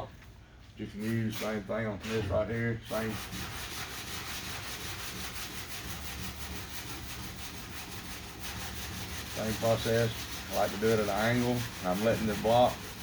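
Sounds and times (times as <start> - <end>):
sandpaper rasping on a panel: 2.9 - 13.0.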